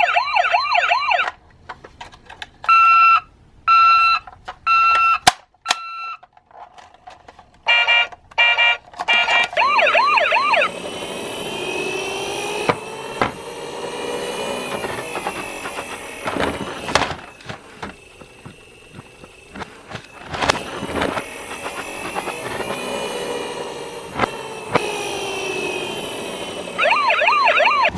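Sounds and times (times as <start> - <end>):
emergency vehicle siren: 0.0 - 1.3, 7.7 - 27.9
sharp clicks and knocks: 11.0 - 26.8.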